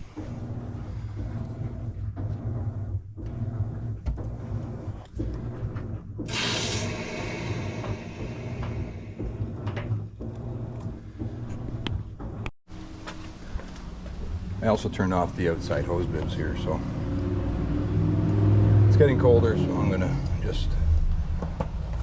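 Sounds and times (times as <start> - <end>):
low rumble: 5.2 - 10.7
water rushing through pipe: 6.2 - 9.6.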